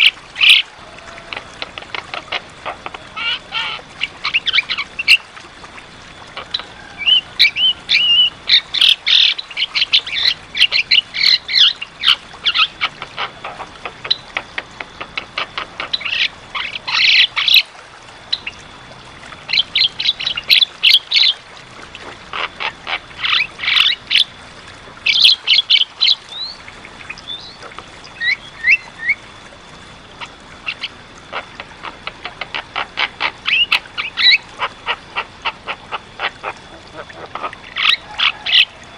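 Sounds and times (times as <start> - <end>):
bird chattering and whistling: 6.4 - 14.3, 28.2 - 29.2, 32.0 - 35.6.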